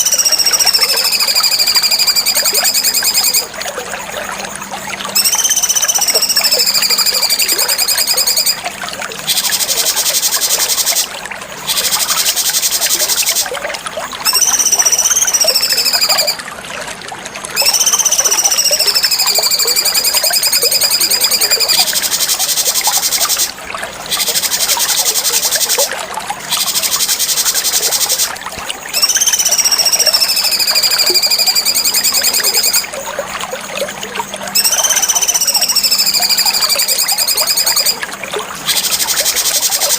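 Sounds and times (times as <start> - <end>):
bird song with buzzy trills: 0.0 - 3.6, 5.0 - 8.6, 9.2 - 13.5, 14.2 - 16.4, 17.3 - 23.5, 26.5 - 33.0, 34.5 - 38.0.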